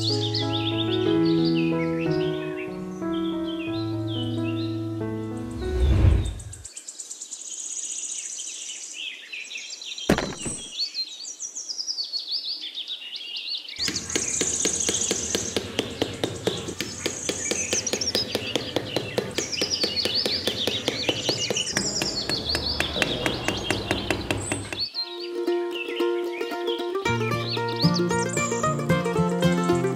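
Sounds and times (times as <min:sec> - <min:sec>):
birds chirping: 0:00.0 - 0:29.9
sharp knock: 0:10.1 - 0:10.7, 0:13.8 - 0:24.9
rapid even clicking: 0:13.8 - 0:24.9.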